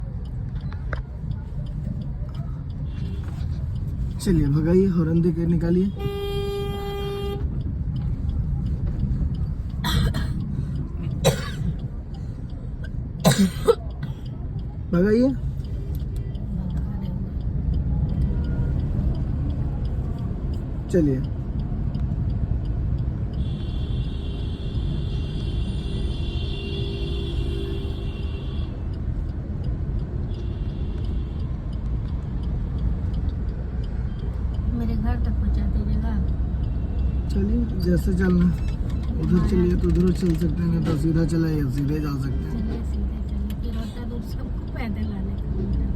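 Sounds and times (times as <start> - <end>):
car rumbling in traffic: 0.0 - 45.9
car horn honk: 5.9 - 7.4, 23.4 - 28.8.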